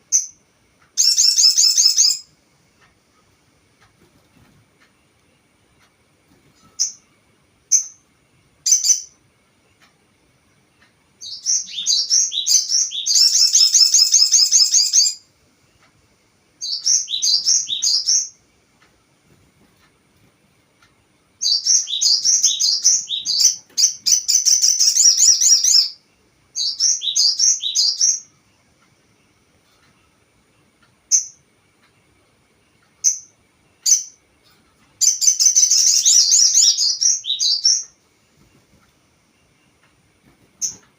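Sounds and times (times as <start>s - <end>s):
bird chirps and rattling trills: 1.0s - 2.3s, 11.2s - 15.2s, 16.6s - 18.4s, 21.4s - 26.0s, 33.0s - 38.8s, 40.4s - 40.9s.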